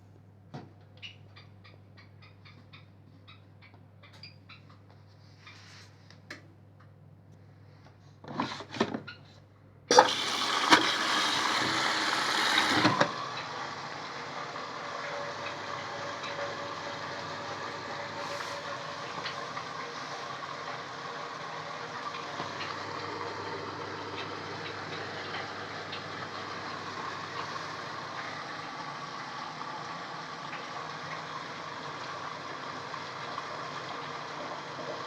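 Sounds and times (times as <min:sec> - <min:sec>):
water rushing into washing machine: 0:09.9 - 0:35.0.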